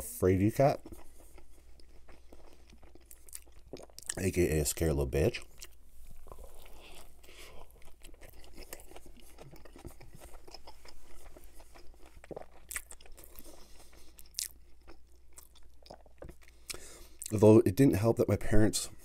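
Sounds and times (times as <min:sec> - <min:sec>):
person chewing burger: 0:00.0 - 0:17.3.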